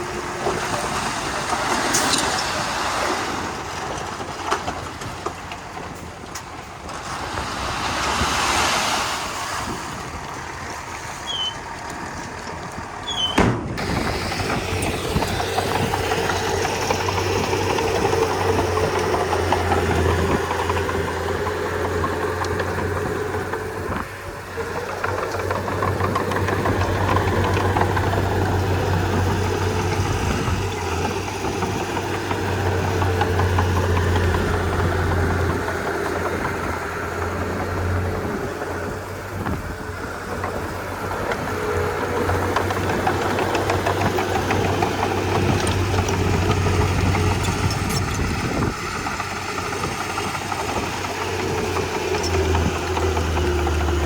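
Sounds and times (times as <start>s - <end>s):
bulldozer diesel engine: 0.0s - 54.0s
sharp clunk: 13.2s - 13.8s.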